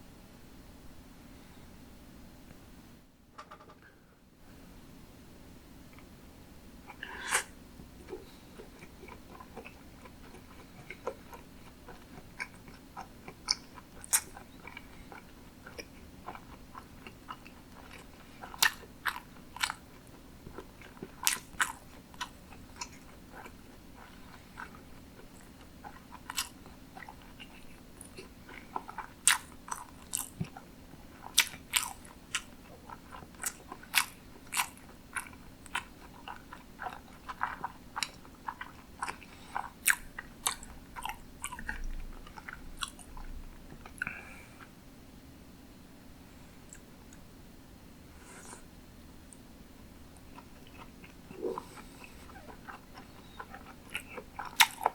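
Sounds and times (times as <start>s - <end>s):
chewing food: 6.9s - 44.7s, 50.1s - 54.9s
mouth clicks and smacks: 50.7s - 54.9s.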